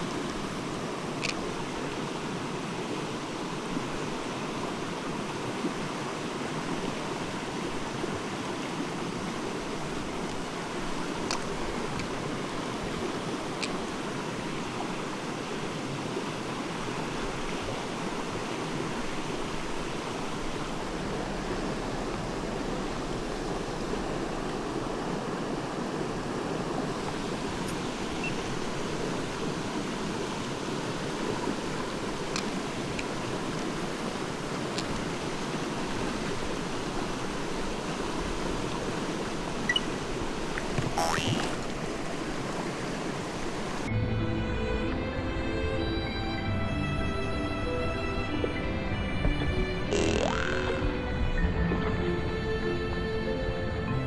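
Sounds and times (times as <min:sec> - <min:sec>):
stream rushing over rocks: 0:00.0 - 0:43.9
faint clicks: 0:01.2 - 0:02.0, 0:11.2 - 0:12.2, 0:32.2 - 0:33.2, 0:33.9 - 0:35.1.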